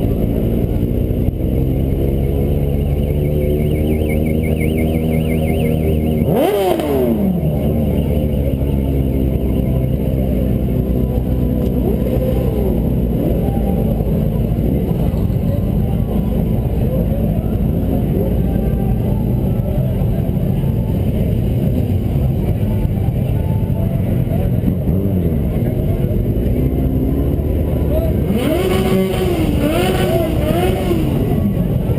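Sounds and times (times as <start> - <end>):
motorcycle engines running: 0.0 - 31.9
motorcycle engine revs: 0.1 - 13.5, 24.6 - 31.9.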